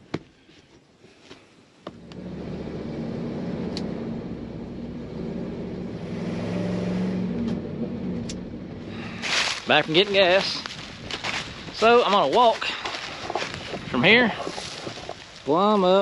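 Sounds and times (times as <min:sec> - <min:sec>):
truck engine starting and running: 0:01.9 - 0:12.0.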